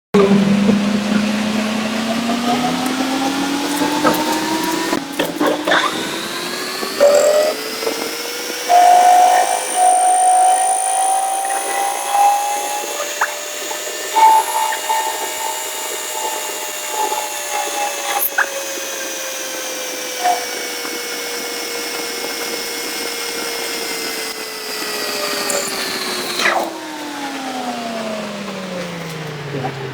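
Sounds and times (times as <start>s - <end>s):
high-pitched squeals: 0.2s - 19.2s, 25.2s - 26.8s
power tool motor whining: 0.2s - 29.9s.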